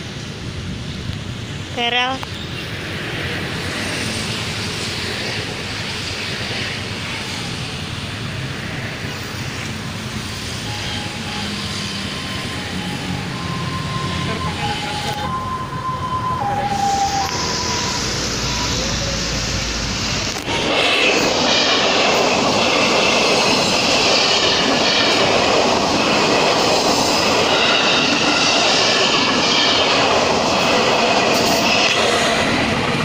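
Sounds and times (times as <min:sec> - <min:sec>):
train rumble approaching: 0:00.0 - 0:33.0
faint two-pitch siren tone: 0:10.3 - 0:19.7.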